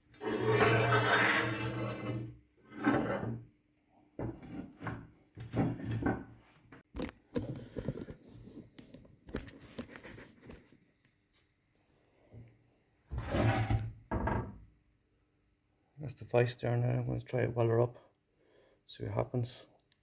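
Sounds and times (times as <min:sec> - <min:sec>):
steel scraping: 0:00.1 - 0:03.4.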